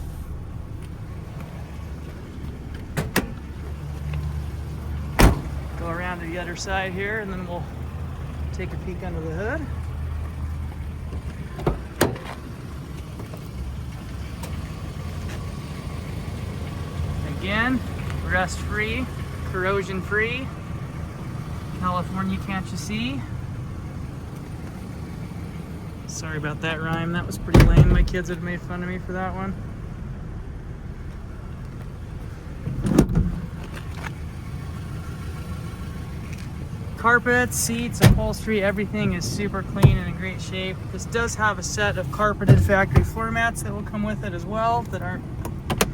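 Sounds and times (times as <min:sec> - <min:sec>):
low rumble: 0:00.0 - 0:05.9
steady low rumble: 0:00.0 - 0:14.0, 0:17.2 - 0:45.7
truck door opening clunk: 0:02.3 - 0:04.4, 0:05.1 - 0:05.8, 0:11.0 - 0:12.5, 0:27.0 - 0:28.2, 0:32.6 - 0:34.2, 0:37.9 - 0:38.4, 0:39.2 - 0:40.2, 0:42.4 - 0:43.2, 0:45.4 - 0:45.9.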